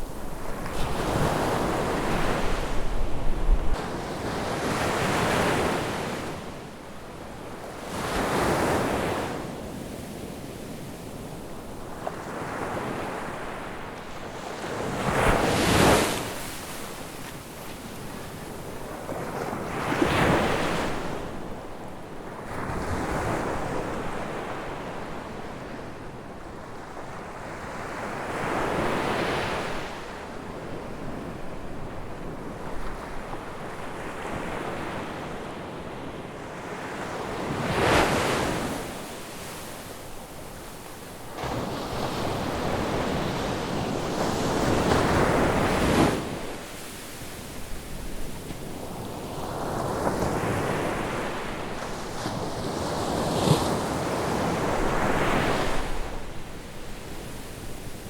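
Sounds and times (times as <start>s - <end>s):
surf washing on a beach: 0.0s - 58.0s.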